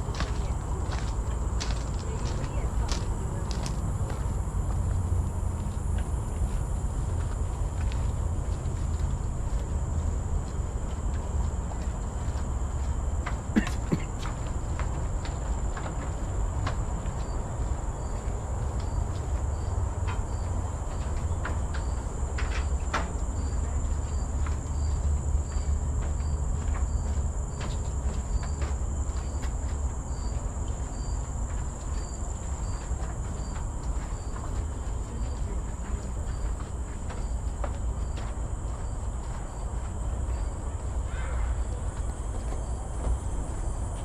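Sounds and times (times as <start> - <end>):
steady low rumble: 0.0 - 22.4
footsteps on a trail: 0.0 - 44.0
insects droning: 0.0 - 44.0.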